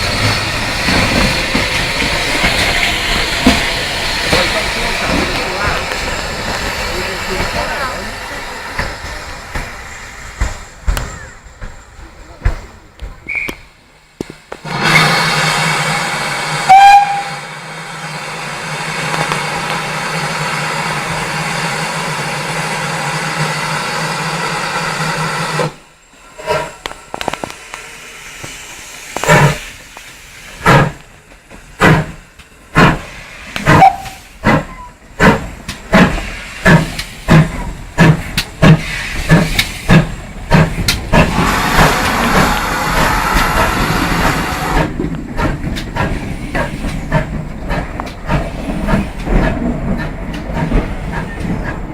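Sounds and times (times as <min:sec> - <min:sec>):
steam locomotive hissing: 0:00.0 - 0:51.9
steam locomotive whistle: 0:13.2 - 0:13.7, 0:14.7 - 0:17.6, 0:33.7 - 0:34.9
locomotive exhaust chuffs: 0:28.7 - 0:51.9.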